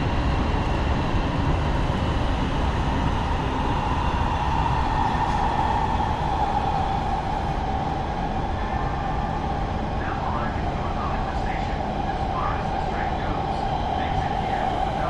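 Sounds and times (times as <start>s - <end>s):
train rumble with high whine: 0.0s - 15.0s.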